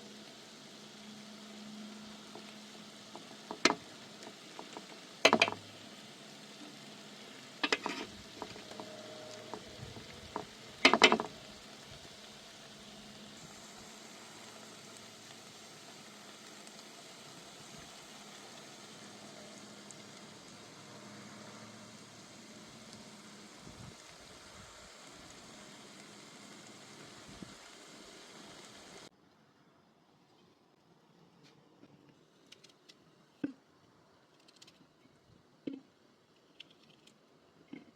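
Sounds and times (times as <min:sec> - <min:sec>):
meat sizzling in a pan: 0:00.0 - 0:29.1.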